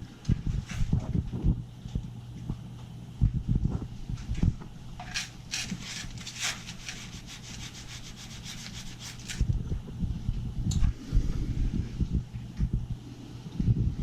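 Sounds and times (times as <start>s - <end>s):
rapid scratchy scrubbing strokes: 5.1s - 9.4s.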